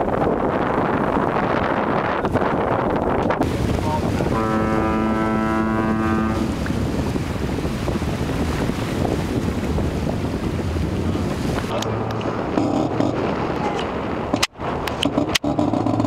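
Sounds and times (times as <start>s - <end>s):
wind buffeting microphone: 0.0s - 16.0s
horn blast: 3.9s - 6.6s.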